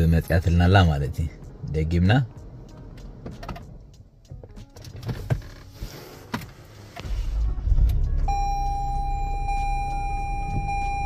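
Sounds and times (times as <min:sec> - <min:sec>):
car engine starting and idling: 0:00.0 - 0:11.0
electronic warning tone: 0:08.3 - 0:11.0.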